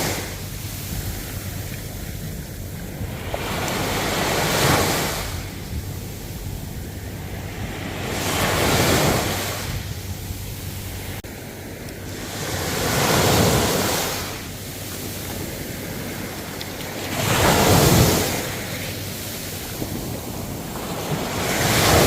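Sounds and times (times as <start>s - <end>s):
ocean waves breaking: 0.0s - 22.0s.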